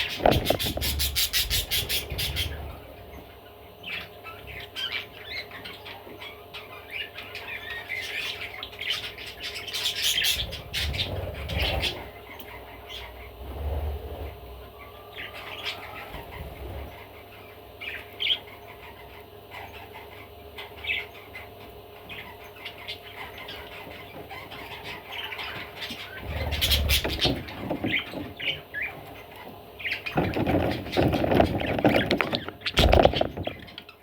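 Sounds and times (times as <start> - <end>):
wings flapping and rustling: 0.0 - 2.9, 23.7 - 34.0
budgerigar chirping and squawking: 0.0 - 13.4, 14.1 - 34.0.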